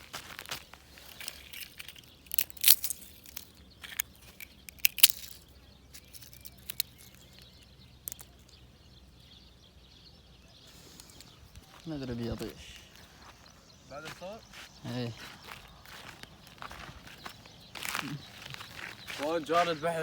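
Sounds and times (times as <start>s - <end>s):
footsteps crunching through dry brush: 0.0s - 8.3s, 10.7s - 20.0s
twigs snapping: 0.0s - 8.6s
faint bird chirps: 0.0s - 20.0s.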